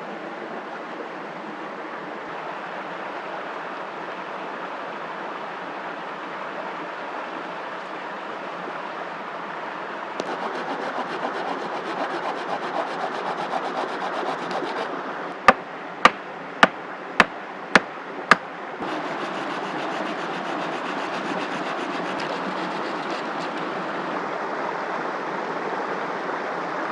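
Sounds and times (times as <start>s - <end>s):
wood being sawn by hand: 10.2s - 15.6s, 18.8s - 24.2s
sharp knocks on wood: 13.5s - 19.4s.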